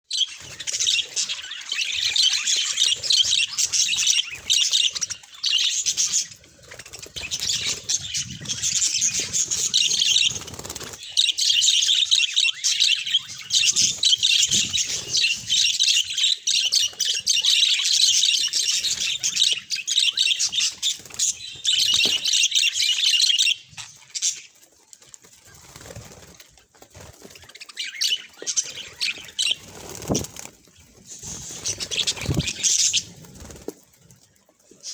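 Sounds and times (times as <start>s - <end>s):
budgerigars chattering and warbling: 0.1s - 24.6s, 27.3s - 33.7s.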